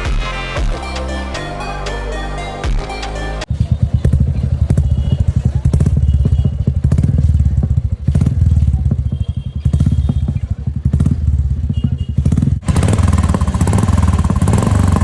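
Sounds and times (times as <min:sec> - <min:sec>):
motorcycle engine idling: 0:03.5 - 0:15.0.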